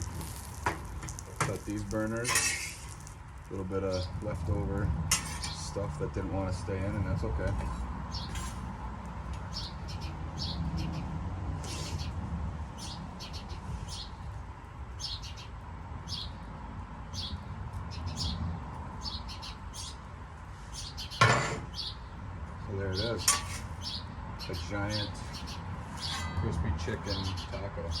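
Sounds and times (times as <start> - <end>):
steady low rumble: 3.2 - 15.0
small bird chirping: 9.4 - 12.2, 12.8 - 16.5, 17.1 - 20.1, 20.7 - 22.2, 22.9 - 26.4.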